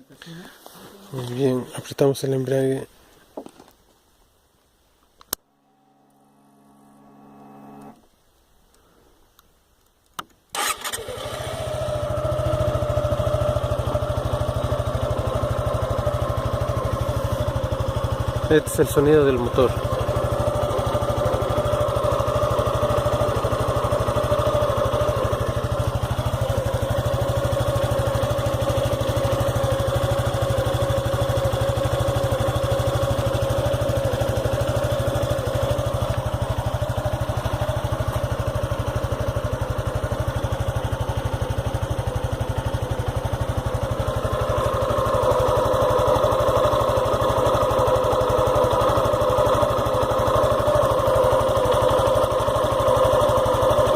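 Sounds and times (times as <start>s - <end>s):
motorcycle engine idling: 10.6s - 53.9s.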